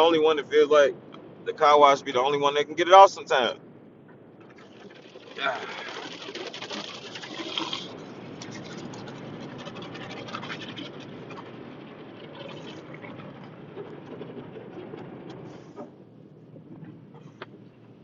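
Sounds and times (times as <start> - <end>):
water rushing in car wash: 4.3 - 18.0
brushes scrubbing car body: 4.6 - 15.8.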